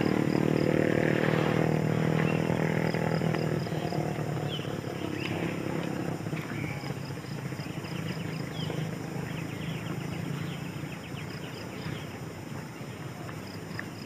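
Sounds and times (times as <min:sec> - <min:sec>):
steady low hum: 0:00.0 - 0:13.6
birds chirping: 0:00.0 - 0:14.0
insects trilling: 0:00.0 - 0:14.0.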